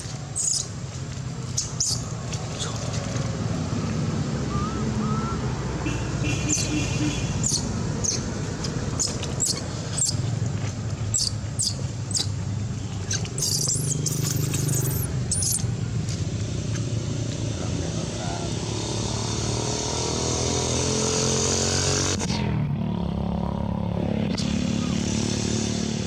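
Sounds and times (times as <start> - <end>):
engine and traffic rumble: 0.0 - 26.0
high-pitched squeaks: 13.1 - 15.6
wavering high squeals: 13.2 - 15.6.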